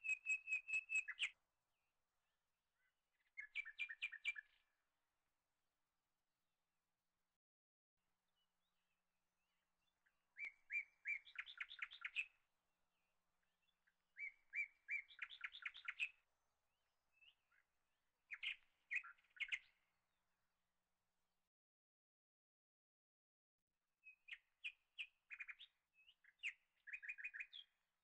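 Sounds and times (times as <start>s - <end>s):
small bird singing trills: 0.0s - 1.4s, 2.8s - 4.7s, 9.8s - 12.4s, 13.6s - 16.2s, 18.3s - 19.8s, 24.0s - 27.8s.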